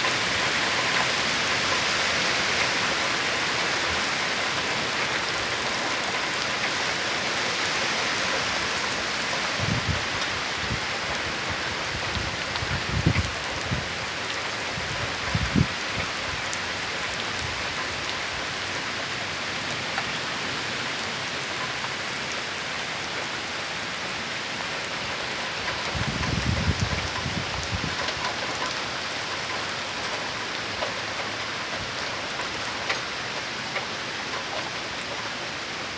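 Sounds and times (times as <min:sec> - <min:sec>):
torrential rain pouring: 0:00.0 - 0:35.9
wind buffeting microphone: 0:09.5 - 0:14.1, 0:14.7 - 0:16.5, 0:25.7 - 0:28.3.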